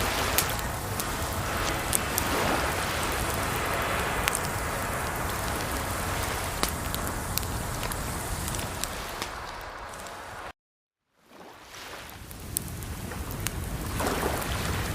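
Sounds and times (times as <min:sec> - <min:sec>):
running water: 0:00.0 - 0:10.4
fire popping: 0:00.0 - 0:10.5, 0:12.1 - 0:14.9
wood fire crackling: 0:00.0 - 0:10.5, 0:12.1 - 0:14.9.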